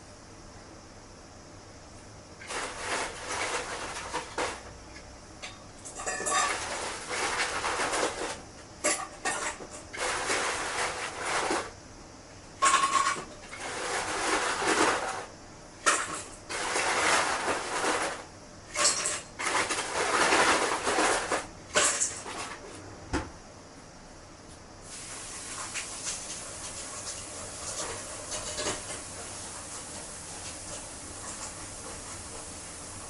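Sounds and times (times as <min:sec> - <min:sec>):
dishes and utensils clinking: 0:05.5 - 0:06.8.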